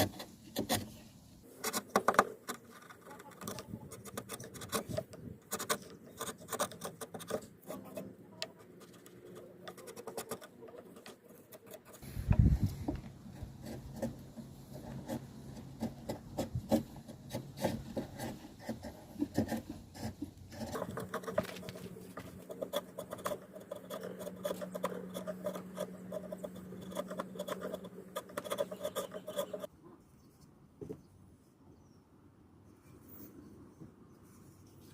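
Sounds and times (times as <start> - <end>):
hand tools tapping and rasping wood: 3.4 - 29.7.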